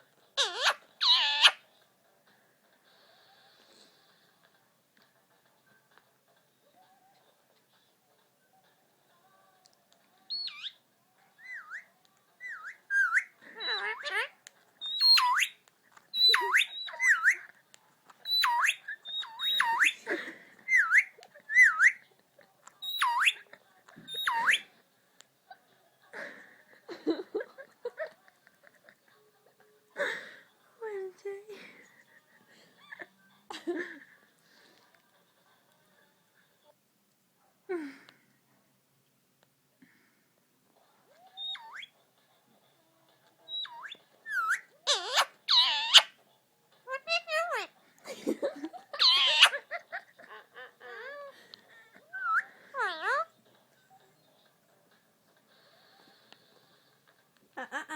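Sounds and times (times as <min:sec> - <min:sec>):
parakeet whistling: 0:00.4 - 0:01.6, 0:10.3 - 0:10.8, 0:11.4 - 0:15.6, 0:16.2 - 0:17.5, 0:18.2 - 0:20.0, 0:20.7 - 0:22.0, 0:22.8 - 0:23.4, 0:24.1 - 0:24.7, 0:41.4 - 0:41.9, 0:43.5 - 0:46.1, 0:49.0 - 0:49.6, 0:52.1 - 0:53.3.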